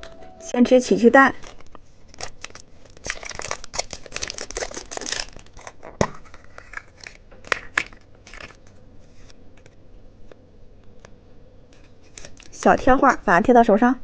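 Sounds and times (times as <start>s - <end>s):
wrapper being torn and crinkled: 1.4s - 8.7s.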